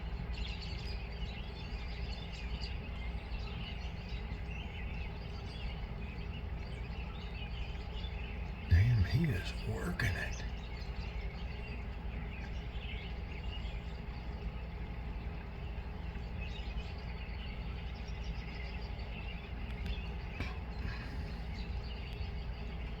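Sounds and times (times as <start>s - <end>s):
faint songbird chirps: 0.0s - 23.0s
steady low hum: 0.0s - 23.0s.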